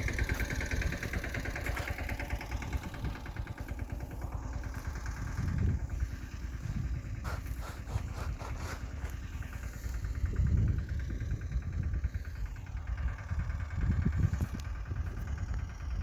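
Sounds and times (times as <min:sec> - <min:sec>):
diesel tractor engine running: 0:00.0 - 0:16.0.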